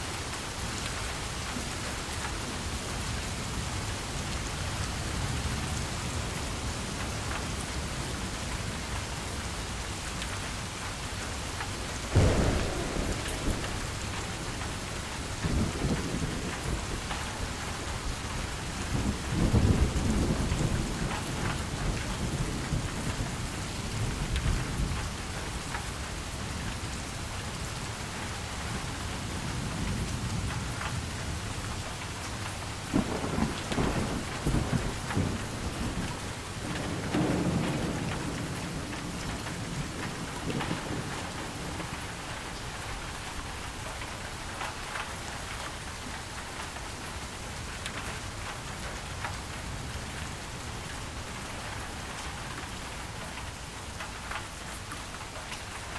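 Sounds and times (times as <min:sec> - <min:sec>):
heavy rain: 0:00.0 - 0:55.9
thunder rumbling: 0:12.0 - 0:24.9, 0:32.9 - 0:43.6.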